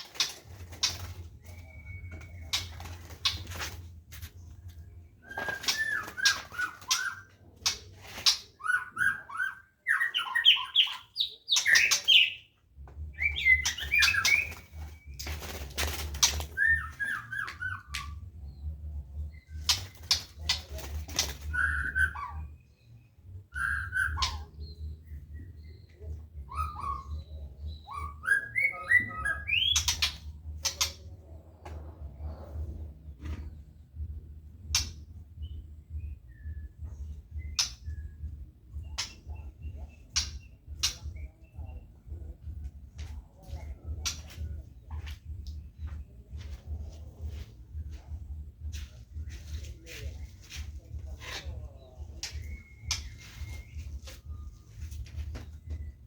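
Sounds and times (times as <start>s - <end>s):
wing flutters: 0.0s - 3.9s, 5.2s - 8.5s, 13.6s - 17.2s, 19.5s - 21.6s
songbirds chirping: 0.0s - 56.0s.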